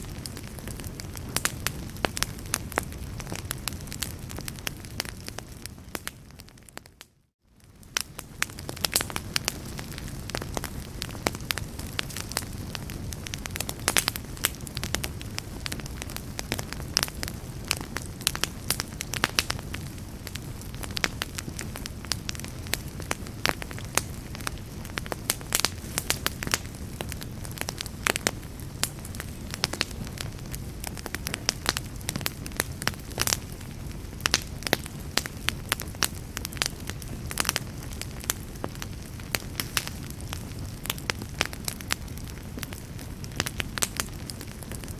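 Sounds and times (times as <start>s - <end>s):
fire pops and snaps: 0.0s - 44.9s
wood fire crackling: 0.0s - 44.9s.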